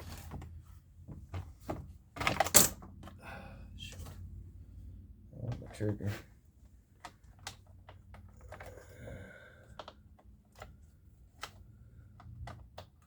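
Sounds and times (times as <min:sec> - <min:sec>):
plastic parts clicking and tapping: 0:06.9 - 0:09.0, 0:09.6 - 0:13.0.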